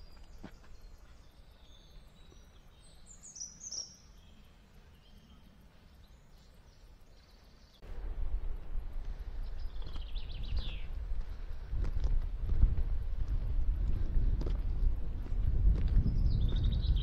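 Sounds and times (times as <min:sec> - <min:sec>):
small birds chirping: 0:00.0 - 0:07.9, 0:09.2 - 0:11.7, 0:15.9 - 0:17.0
faint outdoor background: 0:00.0 - 0:17.0.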